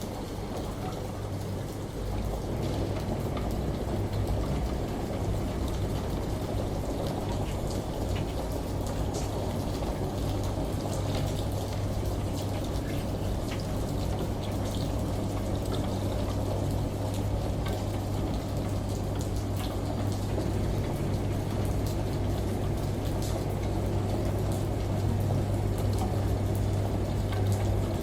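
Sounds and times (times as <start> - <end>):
rain pattering: 0.0 - 28.0
shower running: 0.0 - 28.0
washing machine hum: 0.0 - 28.0.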